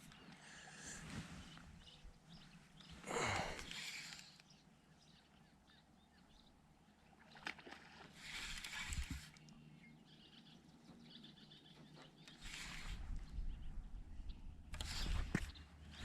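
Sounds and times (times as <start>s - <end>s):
faint bird chirps: 8.5s - 16.0s.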